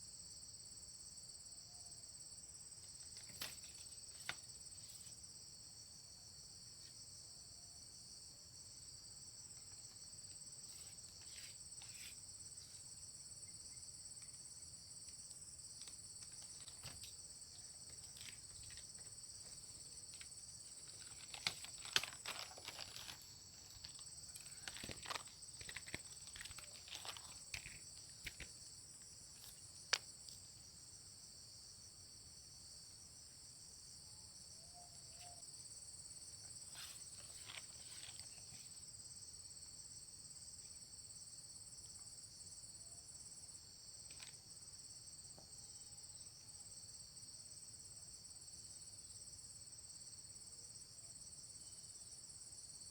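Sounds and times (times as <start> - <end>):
crickets chirping: 0.0 - 52.9
rustling: 17.9 - 28.6.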